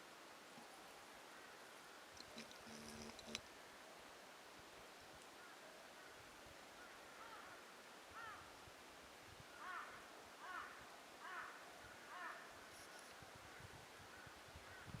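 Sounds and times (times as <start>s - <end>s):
quiet forest background: 0.0s - 15.0s
crow cawing: 6.8s - 8.5s, 9.6s - 12.5s.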